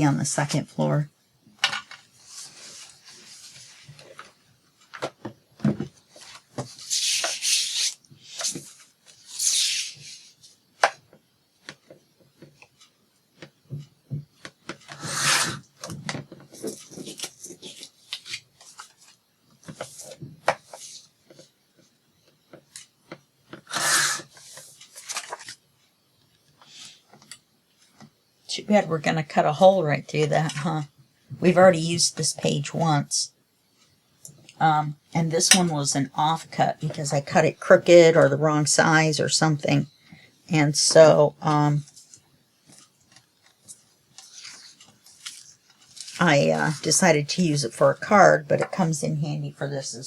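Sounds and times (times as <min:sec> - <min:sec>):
paper rubbing: 0:06.7 - 0:10.4.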